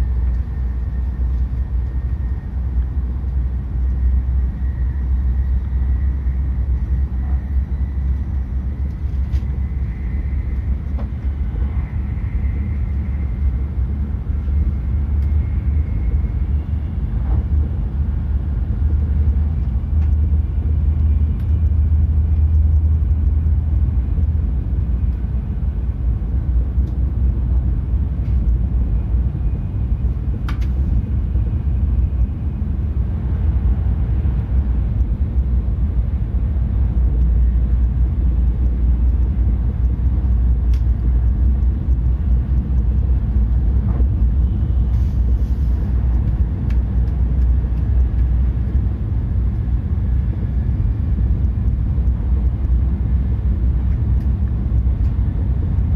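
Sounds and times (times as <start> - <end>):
train interior low rumble: 0.0 - 55.9
faint clicks: 36.7 - 44.1.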